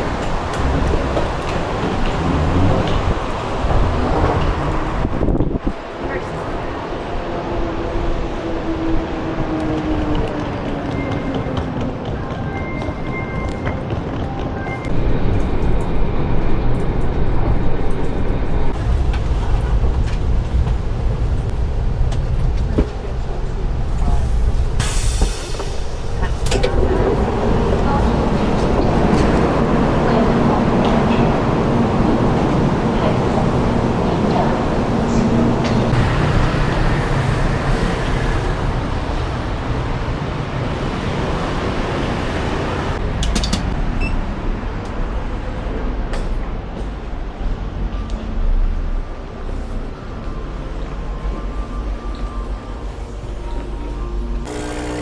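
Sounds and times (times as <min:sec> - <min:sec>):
vehicle rumbling past: 0:00.0 - 0:05.8
low rumble of traffic: 0:00.0 - 0:12.4, 0:13.8 - 0:54.6.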